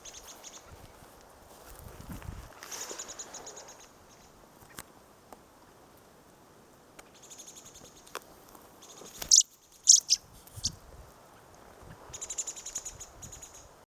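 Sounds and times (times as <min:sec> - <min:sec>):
loud sharp bird calls: 0:08.8 - 0:10.2
bird chattering rattles: 0:08.8 - 0:10.7.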